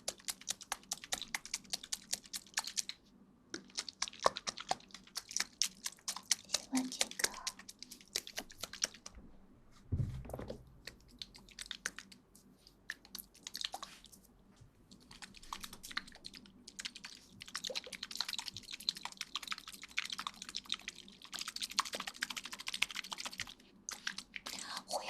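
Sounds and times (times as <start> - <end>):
soft crackling and rustling: 0.0 - 25.0
low thump: 9.9 - 10.7.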